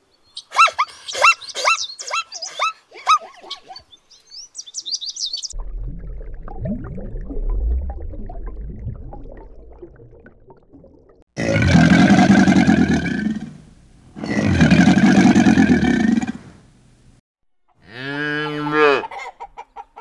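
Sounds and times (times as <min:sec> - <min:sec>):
zebra yelping barks: 0:00.4 - 0:03.9.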